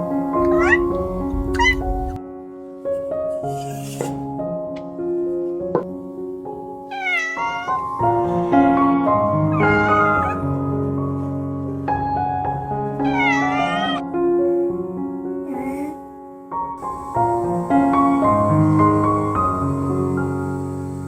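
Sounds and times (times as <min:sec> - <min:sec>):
cat meowing: 0:00.4 - 0:02.2, 0:06.9 - 0:08.6, 0:09.5 - 0:10.5, 0:13.0 - 0:14.0.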